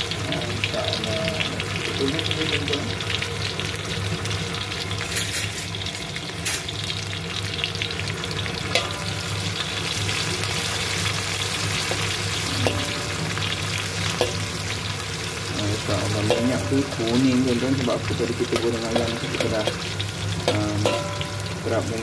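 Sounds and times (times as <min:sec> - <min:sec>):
vegetables sizzling in hot oil: 0:00.0 - 0:22.0
spatula tapping and scraping pan: 0:14.2 - 0:14.6, 0:18.5 - 0:21.6.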